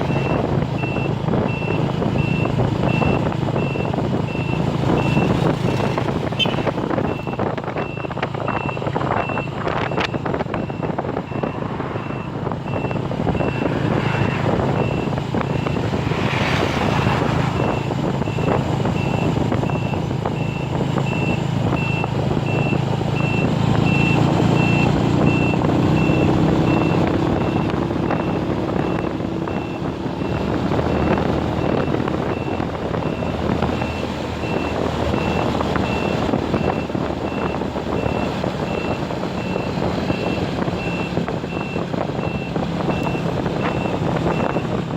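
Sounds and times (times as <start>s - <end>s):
heavy vehicle engine rumble: 0.0s - 44.9s
reversing alarm beeping: 0.1s - 15.9s, 17.0s - 44.8s.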